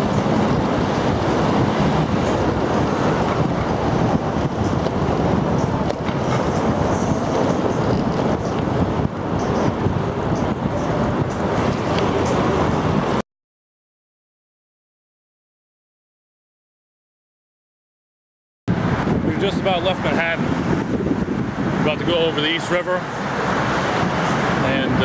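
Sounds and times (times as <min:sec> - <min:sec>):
city traffic and road noise: 0:00.0 - 0:13.2, 0:18.7 - 0:25.0.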